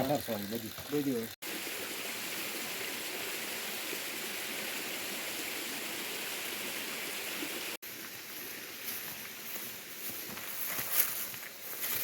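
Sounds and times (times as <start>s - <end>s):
stream water rushing: 1.4s - 9.8s.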